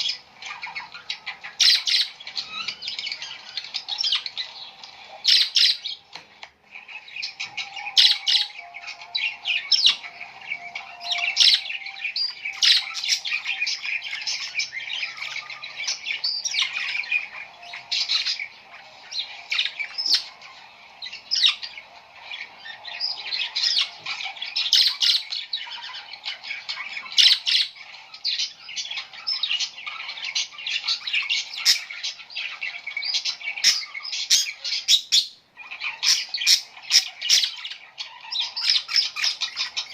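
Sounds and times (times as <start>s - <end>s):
flock of birds chirping: 0.0s - 39.9s.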